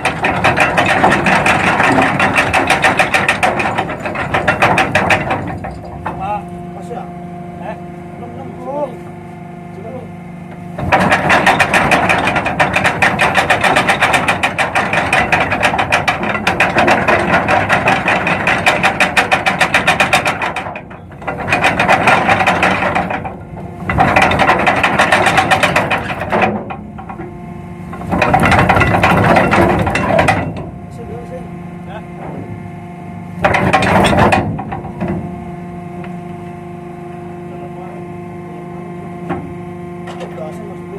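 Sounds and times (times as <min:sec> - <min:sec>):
anchor chain rattling: 0:00.0 - 0:06.4, 0:10.8 - 0:27.2.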